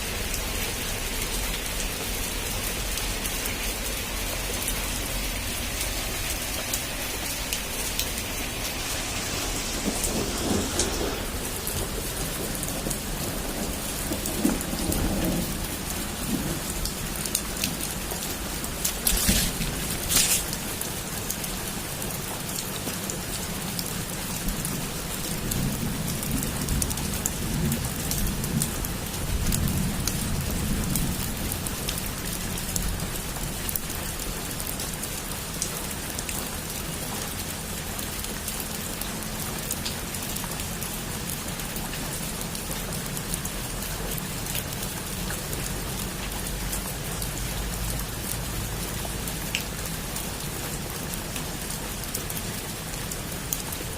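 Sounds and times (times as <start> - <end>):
heavy rain on a roof: 0.0 - 53.9
low thunder rumble: 7.0 - 20.7
thunder crack: 8.4 - 16.8.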